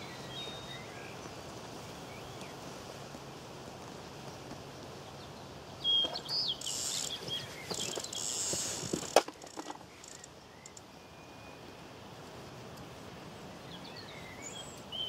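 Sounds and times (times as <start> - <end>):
outdoor background noise: 0.0 - 15.0
small bird singing whistled phrases: 5.8 - 8.4.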